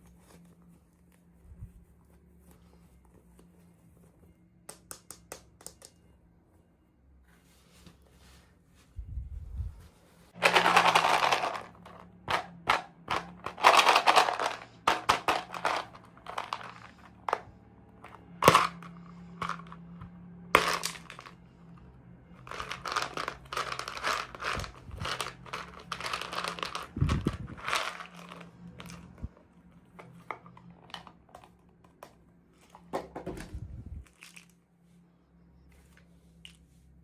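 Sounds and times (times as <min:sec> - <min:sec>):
plastic packaging crinkling: 0:22.4 - 0:29.1.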